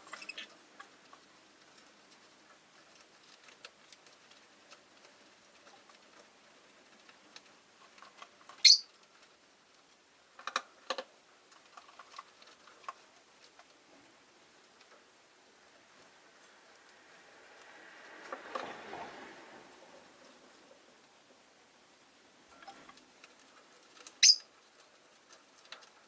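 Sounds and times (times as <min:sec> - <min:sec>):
lovebird chirp: 0:00.1 - 0:00.5, 0:08.6 - 0:08.9, 0:24.2 - 0:24.5
clicks and taps from cage: 0:10.4 - 0:13.7.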